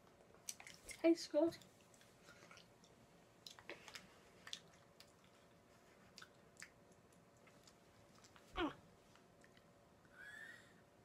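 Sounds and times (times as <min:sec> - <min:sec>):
chewing sweet with mouth clicks: 0:00.1 - 0:01.0, 0:01.6 - 0:08.4.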